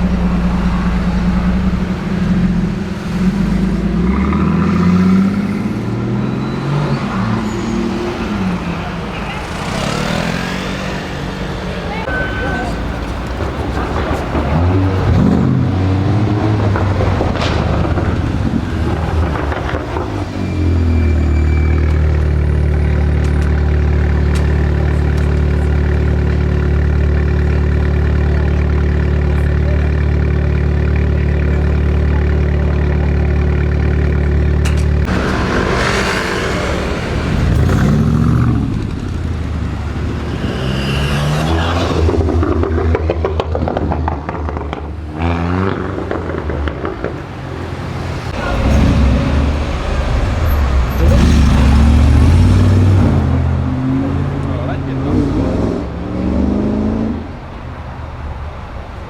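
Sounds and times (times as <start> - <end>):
deep engine idling: 0.0 - 4.1, 11.4 - 40.3, 47.0 - 53.6
engines revving and accelerating: 0.0 - 57.6.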